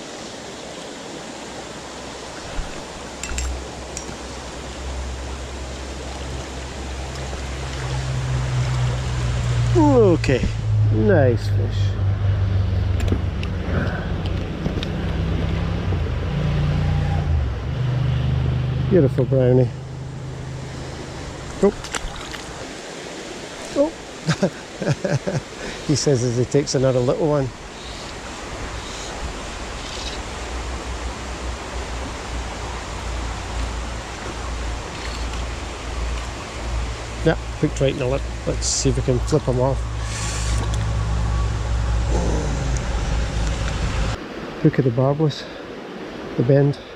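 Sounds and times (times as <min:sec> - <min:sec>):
stream rushing over stones: 0:00.0 - 0:11.7, 0:12.9 - 0:46.9
low steady drone: 0:04.4 - 0:21.7, 0:30.6 - 0:44.2
low rumble: 0:07.8 - 0:21.6, 0:36.8 - 0:44.2.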